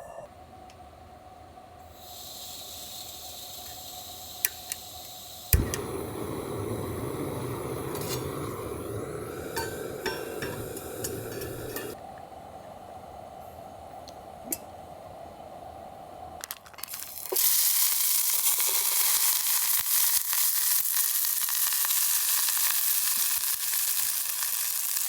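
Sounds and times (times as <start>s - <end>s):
food sizzling on a griddle: 2.0s - 12.0s, 16.8s - 25.0s.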